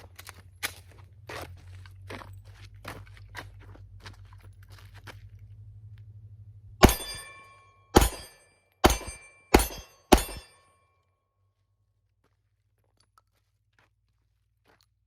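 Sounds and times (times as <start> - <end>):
pistol shots with ringing tail: 6.8 - 10.7.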